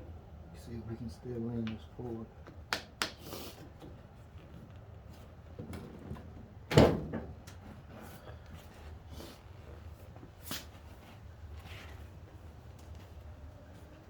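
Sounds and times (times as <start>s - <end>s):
faint handling and rustling: 7.6s - 14.0s.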